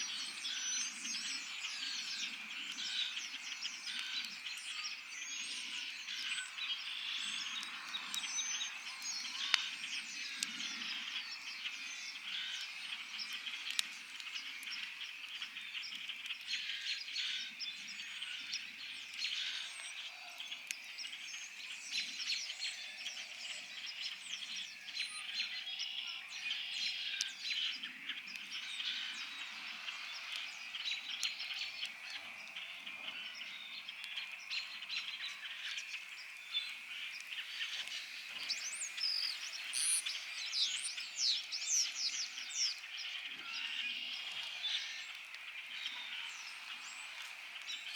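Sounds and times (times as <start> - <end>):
campfire crackling and popping: 0.1 - 22.4, 26.7 - 43.3, 44.2 - 47.9
birds calling: 26.4 - 47.9.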